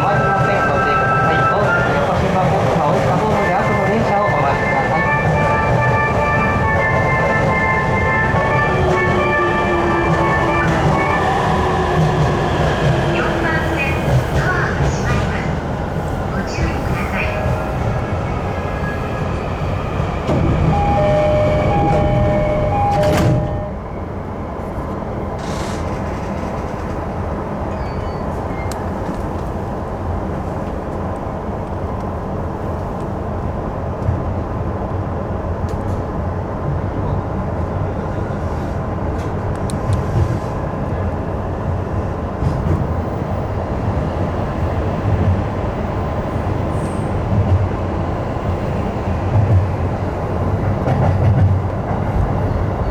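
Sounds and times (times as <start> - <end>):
train running rumble: 1.8 - 23.9, 24.6 - 52.9
train doors shutting: 4.1 - 29.6
two-tone door chime: 20.6 - 23.8
rail-joint clicks: 21.6 - 23.8, 27.7 - 29.5.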